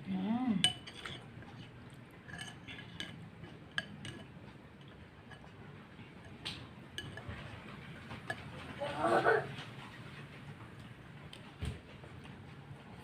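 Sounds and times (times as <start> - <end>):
utensils clinking against bowl: 0.6 - 9.6.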